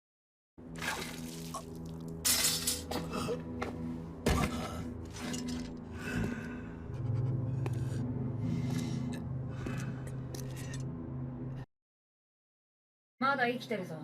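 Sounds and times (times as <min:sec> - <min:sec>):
tense background music: 0:00.6 - 0:11.7
steady low drone: 0:02.9 - 0:11.6.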